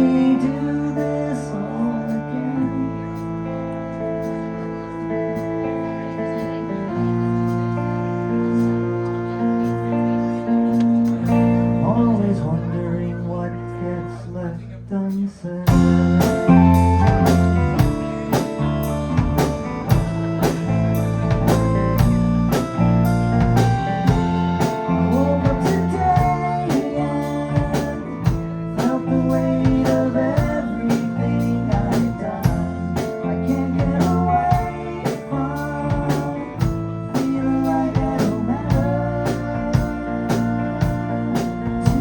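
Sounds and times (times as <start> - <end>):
bass guitar: 0.0 - 42.0
keyboards: 0.0 - 42.0
drum kit beat: 15.7 - 42.0
electric guitar: 15.7 - 42.0.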